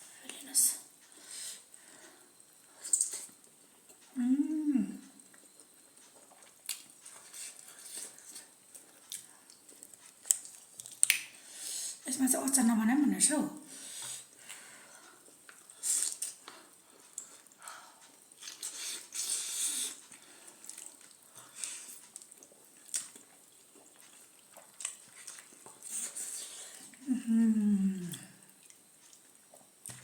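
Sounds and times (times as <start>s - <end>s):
person humming: 4.1s - 5.1s, 27.0s - 28.4s
noodles being slurped and chewed: 18.3s - 27.0s.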